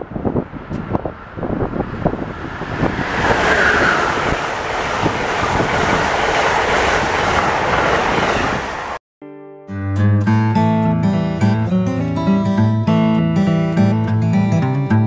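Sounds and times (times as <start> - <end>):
passenger train passing at speed: 0.0 - 9.0.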